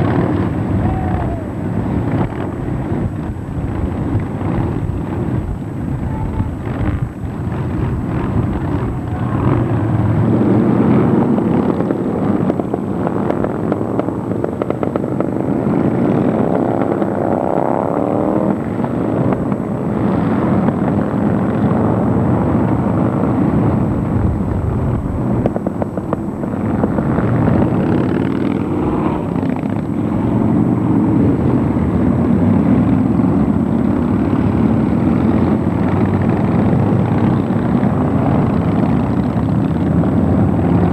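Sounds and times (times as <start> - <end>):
motorcycle engine revving: 0.0 - 40.9
motorcycles riding past: 0.0 - 40.9.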